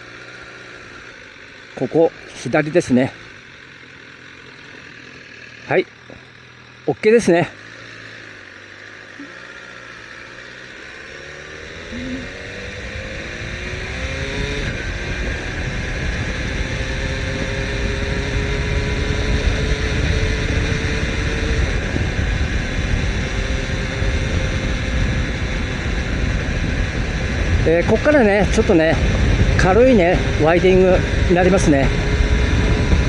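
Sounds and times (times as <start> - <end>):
motorcycle engine accelerating: 0.0 - 33.0
wind rush on microphone: 12.0 - 33.0.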